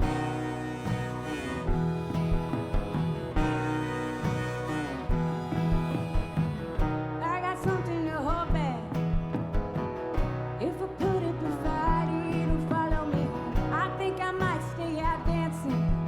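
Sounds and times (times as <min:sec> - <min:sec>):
sliding high melody line: 0:00.0 - 0:06.9
drum beat: 0:00.0 - 0:10.6
live country rock band: 0:00.0 - 0:16.0.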